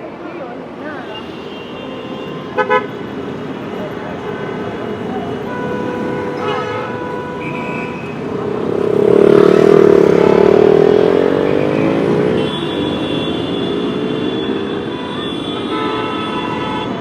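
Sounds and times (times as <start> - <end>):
vehicle engine passing by: 8.2 - 12.4.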